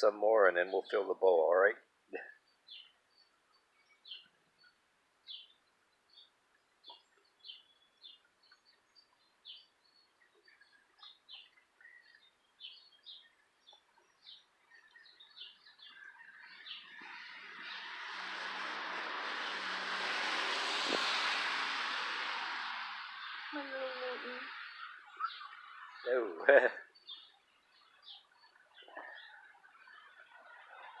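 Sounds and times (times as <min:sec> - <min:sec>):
small birds chirping faintly: 0:00.0 - 0:31.0
broad rush of noise: 0:16.8 - 0:25.5.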